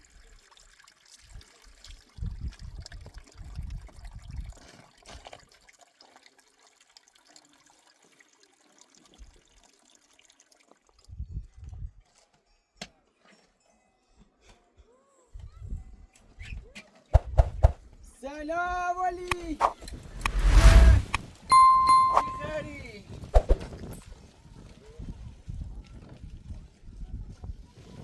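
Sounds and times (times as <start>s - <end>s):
water trickling and splashing: 0.0s - 11.9s
heavy low rumbles: 20.0s - 21.3s.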